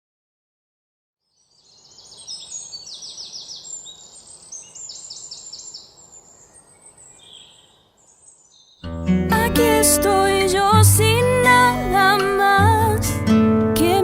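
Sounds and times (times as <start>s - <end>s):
faint outdoor hiss: 1.2s - 14.0s
birds chirping and singing: 1.3s - 8.8s.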